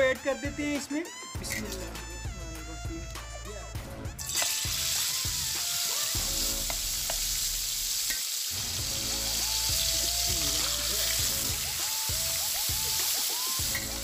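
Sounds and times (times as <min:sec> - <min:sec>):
chicken sizzling in hot oil: 0:04.2 - 0:14.0.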